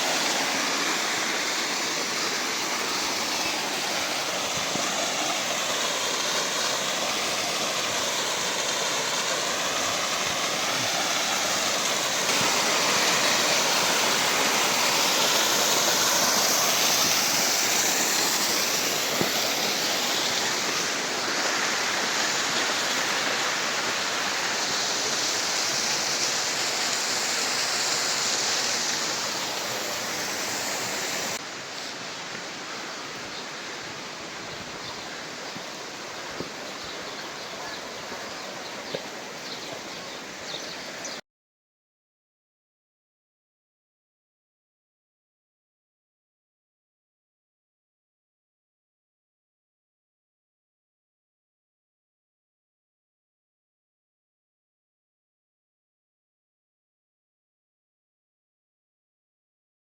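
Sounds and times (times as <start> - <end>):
rushing water: 0.0 - 41.2.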